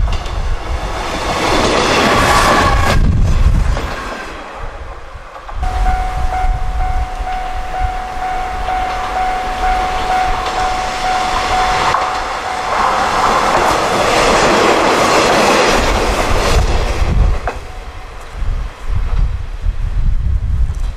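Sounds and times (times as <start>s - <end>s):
steady high whine: 5.6s - 14.8s
wheels clattering over rail joints: 8.2s - 18.3s.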